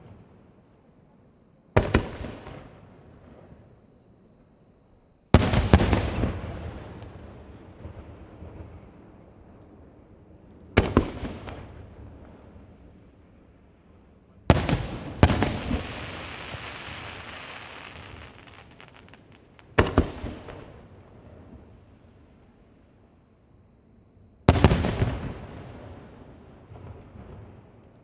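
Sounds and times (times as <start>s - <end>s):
crackling sparkling firework tail: 0.0s - 28.0s
firework booms with echoing rumble: 1.8s - 3.7s, 5.3s - 22.6s, 24.5s - 27.8s
small firework pops: 14.5s - 20.9s.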